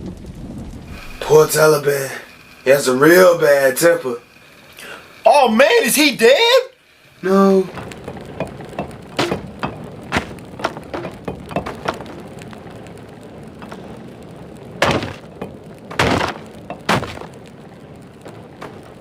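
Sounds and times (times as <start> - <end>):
loud crashes: 0.0 - 3.3, 13.5 - 17.5.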